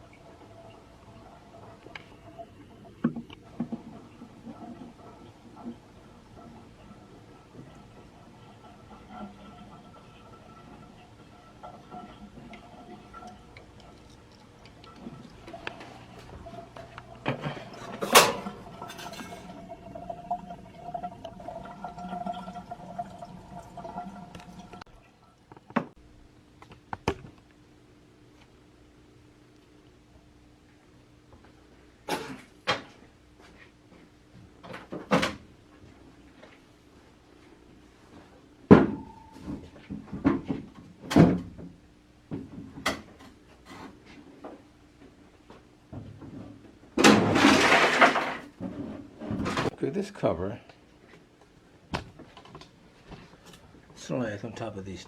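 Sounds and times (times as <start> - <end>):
water splashing in a drain: 0.9 - 24.9.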